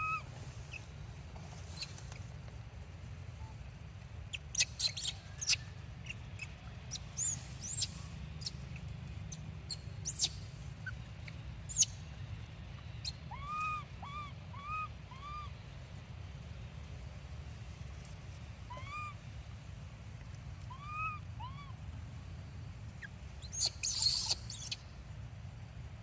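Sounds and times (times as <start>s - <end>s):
baby monkey squeaking: 0.0s - 0.2s, 4.3s - 8.6s, 9.3s - 10.4s, 11.7s - 12.0s, 13.0s - 15.5s, 18.7s - 19.2s, 20.7s - 21.7s, 23.4s - 24.8s
monkey rising and falling calls: 18.7s - 19.2s, 20.7s - 21.8s, 23.4s - 24.8s.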